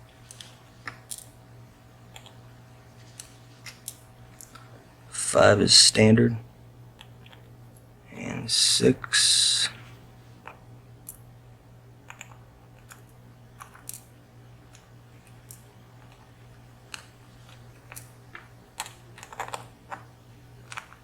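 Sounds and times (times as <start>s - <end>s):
steady low hum: 4.1s - 13.5s.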